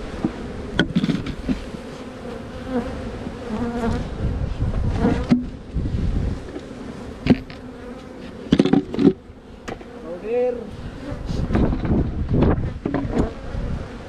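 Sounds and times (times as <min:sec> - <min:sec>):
honeybees buzzing: 0:00.0 - 0:14.0
hive equipment knocks: 0:08.5 - 0:09.9.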